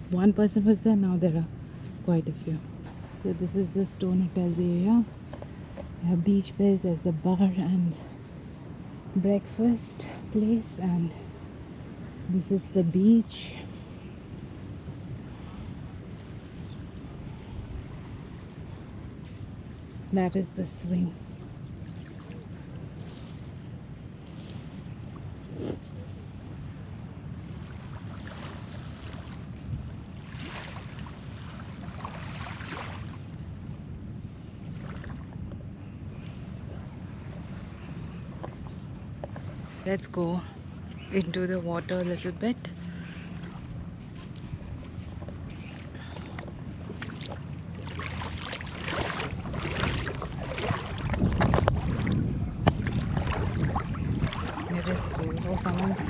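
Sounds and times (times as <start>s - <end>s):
wind rumbling on microphone: 0.0s - 56.0s
small waves washing onto sand: 21.2s - 33.5s, 41.8s - 56.0s
seawater splashing around legs: 45.6s - 56.0s.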